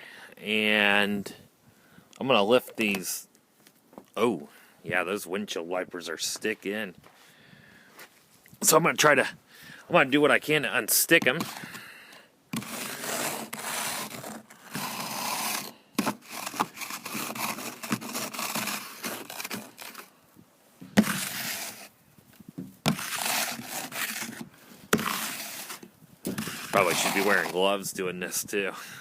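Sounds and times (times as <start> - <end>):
ice crunching and scraping: 10.9 - 11.9, 12.5 - 20.1, 20.9 - 22.0, 22.7 - 27.8
ice cracking: 12.6 - 20.1, 22.9 - 24.4, 25.0 - 27.6.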